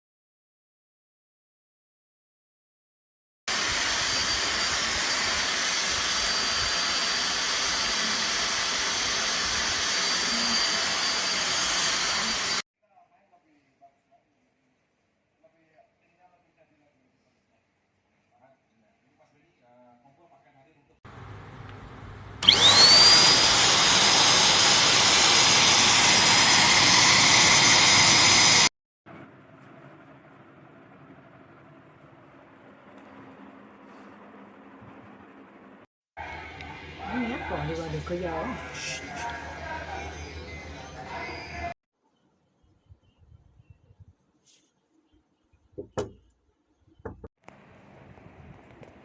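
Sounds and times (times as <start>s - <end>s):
vacuum cleaner running: 3.5s - 12.6s, 21.1s - 28.7s, 36.2s - 41.7s.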